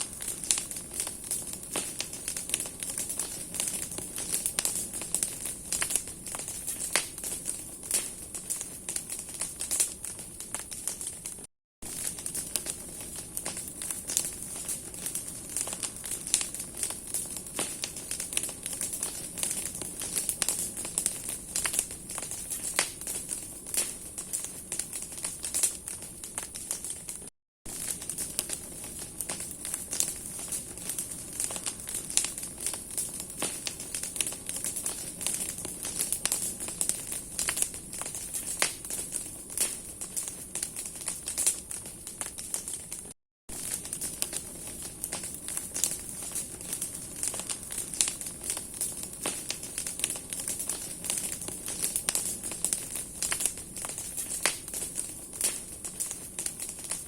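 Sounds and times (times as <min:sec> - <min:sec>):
hiss of flame: 0:00.0 - 0:11.0, 0:43.6 - 0:57.0
bonfire crackling: 0:00.0 - 0:57.0.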